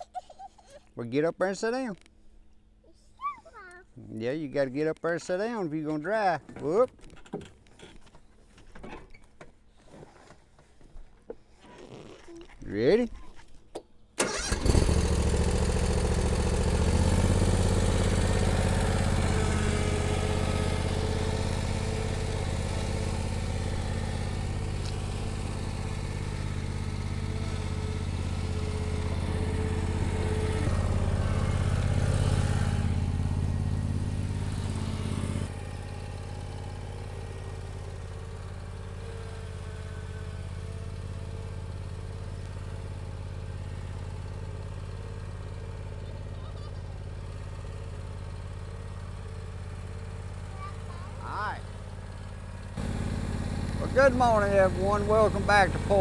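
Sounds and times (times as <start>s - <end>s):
lawn mower engine running: 14.2s - 56.0s.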